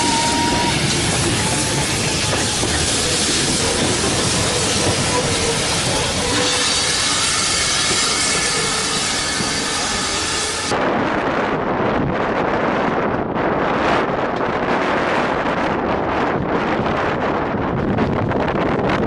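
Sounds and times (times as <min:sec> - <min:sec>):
steam locomotive hissing: 0:00.0 - 0:10.7
wind on microphone: 0:00.0 - 0:19.0.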